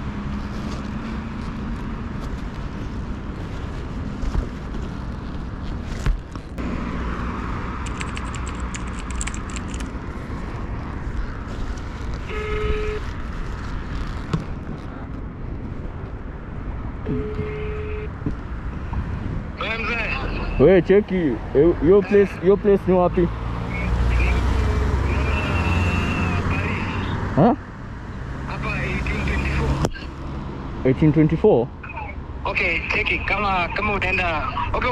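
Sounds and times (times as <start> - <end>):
wind and road noise: 0.0 - 34.9
vehicle horn toots: 12.3 - 13.0, 17.0 - 18.2.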